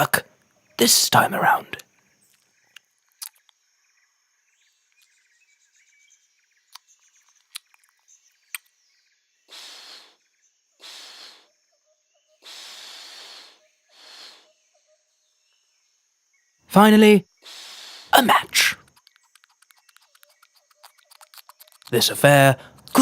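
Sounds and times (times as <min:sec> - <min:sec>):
bird chirps: 0:00.0 - 0:23.0
short hissing noise bursts: 0:09.5 - 0:10.2, 0:10.8 - 0:11.5, 0:12.4 - 0:14.6, 0:17.4 - 0:22.0
sharp clicks: 0:18.2 - 0:23.0.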